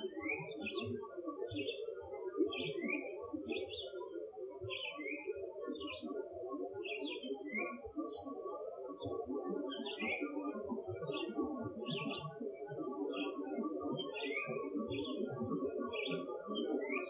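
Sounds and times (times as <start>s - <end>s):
songbird singing: 14.0s - 15.3s.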